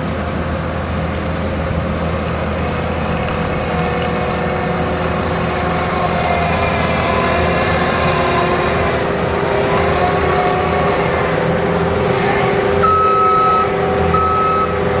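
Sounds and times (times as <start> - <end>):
diesel engine running: 0.0 - 15.0
backup alarm beeps: 12.8 - 14.8.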